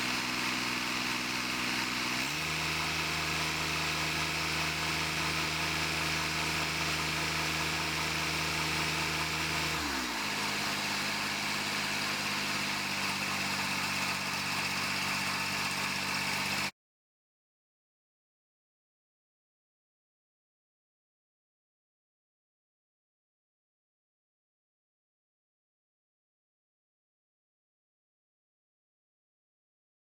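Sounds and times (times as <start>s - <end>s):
tractor engine running: 0.0s - 16.7s.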